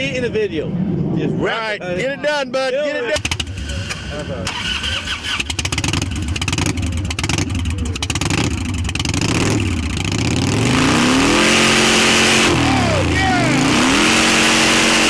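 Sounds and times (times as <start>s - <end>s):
exhaust popping and crackling: 3.2s - 15.0s
motorcycle engine revving: 3.2s - 15.0s.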